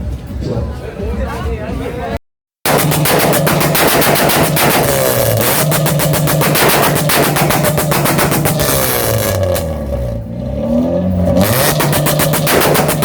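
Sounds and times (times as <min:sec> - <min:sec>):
car exhaust pops and bangs: 0:02.6 - 0:10.3, 0:11.1 - 0:13.0
car engine revving: 0:02.7 - 0:13.0.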